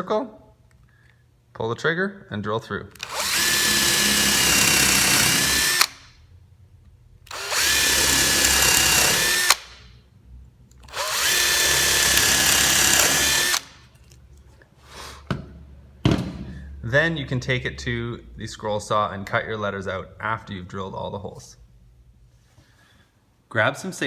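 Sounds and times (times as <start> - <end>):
cordless drill whining: 3.0 - 6.1, 7.3 - 9.8, 10.9 - 13.8.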